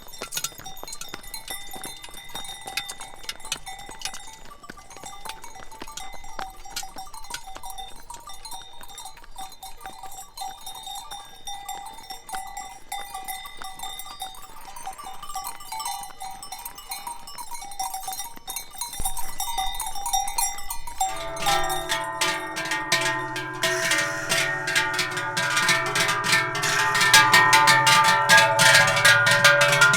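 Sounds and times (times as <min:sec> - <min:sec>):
cowbells clanging: 0:00.0 - 0:29.9
plucked zither-like music: 0:21.1 - 0:29.9.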